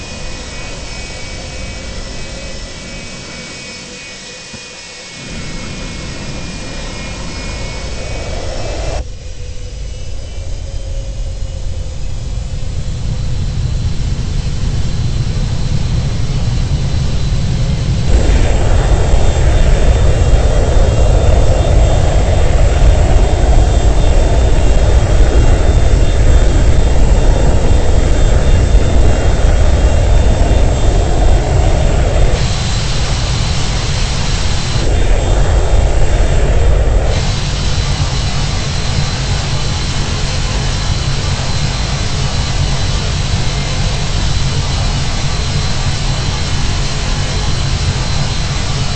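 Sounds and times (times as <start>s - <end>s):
jet engines whining: 0.0s - 48.9s.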